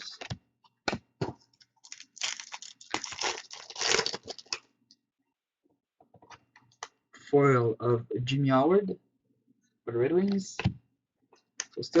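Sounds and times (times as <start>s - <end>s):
wrapper tearing and crinkling: 1.8s - 4.6s.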